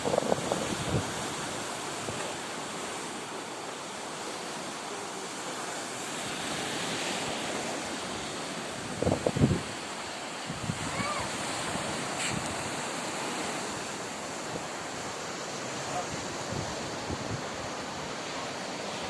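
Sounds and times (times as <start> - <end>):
wind on the microphone: 0.0 - 2.8, 6.3 - 15.1, 15.7 - 18.9
sea surf washing on shore: 0.0 - 19.0.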